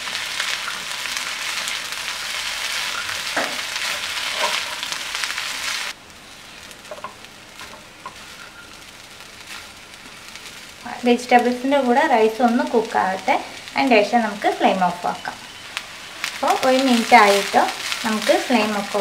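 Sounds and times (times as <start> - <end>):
rice and vegetables sizzling in pan: 0.0 - 19.0
spatula stirring and scraping: 2.8 - 5.0.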